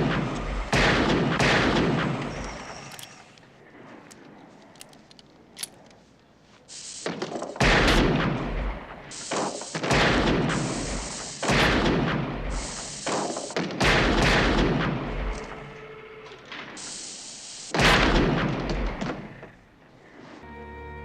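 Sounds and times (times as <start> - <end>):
loud ringing gunshots: 0.0 - 2.9, 7.6 - 16.1, 17.7 - 19.4.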